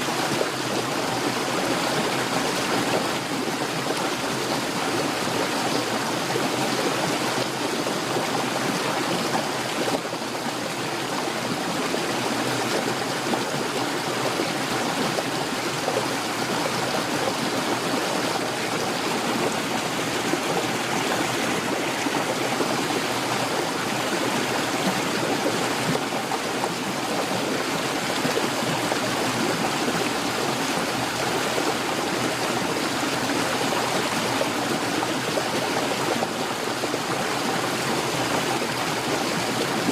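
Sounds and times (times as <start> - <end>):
heavy rain pouring: 10.8 - 39.9.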